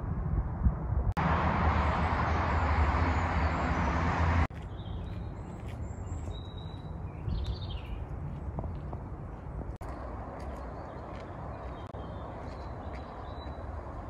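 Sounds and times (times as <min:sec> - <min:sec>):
loud rushing noise: 0:01.2 - 0:04.5
birds chirping: 0:01.6 - 0:14.0.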